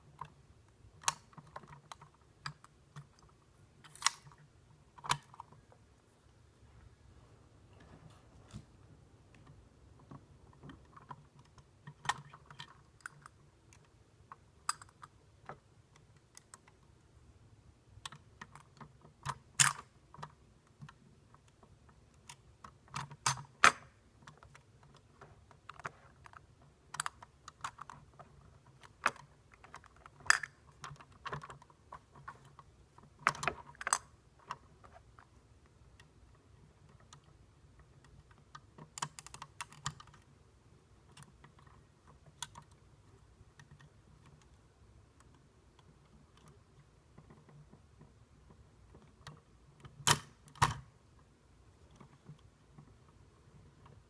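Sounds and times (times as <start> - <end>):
plastic toy parts clicking: 0.1 - 5.6, 10.5 - 16.9, 18.0 - 40.3, 48.9 - 50.9.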